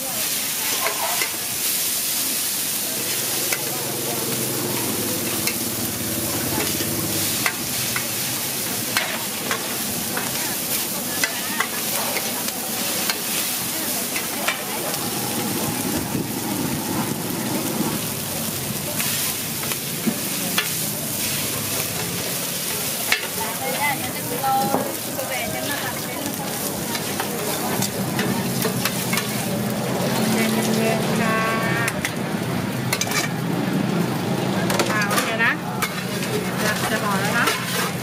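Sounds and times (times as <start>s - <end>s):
noodles sizzling on a pan: 0.0s - 38.0s
metal spatulas scraping: 0.6s - 1.4s, 35.0s - 38.0s.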